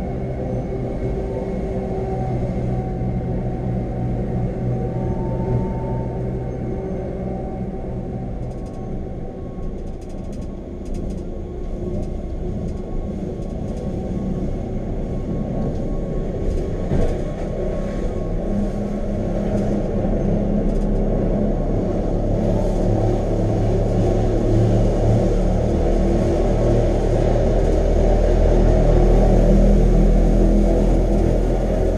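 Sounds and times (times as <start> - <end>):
electric train rumbling: 0.0 - 31.9
low motor hum: 0.0 - 31.9.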